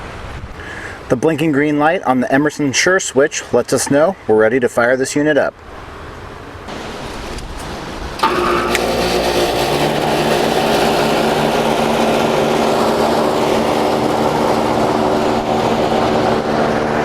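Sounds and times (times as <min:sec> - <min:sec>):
air conditioner humming: 0:06.4 - 0:17.0.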